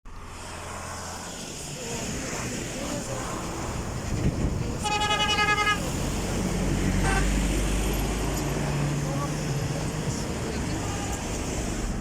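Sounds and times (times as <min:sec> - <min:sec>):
car engine and road noise: 0:00.1 - 0:12.0
car horn honking: 0:04.8 - 0:05.9, 0:07.0 - 0:07.4.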